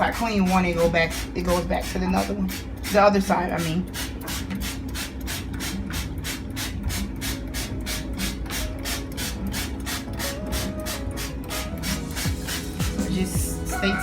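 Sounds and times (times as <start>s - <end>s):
scrub brush scrubbing: 2.9s - 13.9s.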